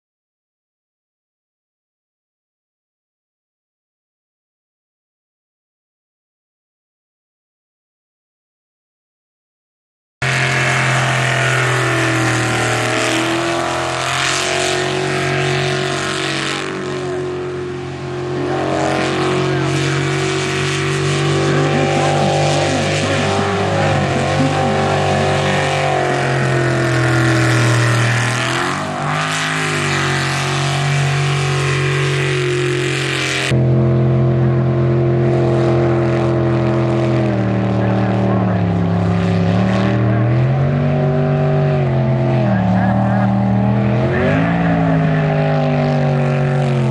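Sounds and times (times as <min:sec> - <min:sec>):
jet boat engines running hard: 0:10.2 - 0:46.9.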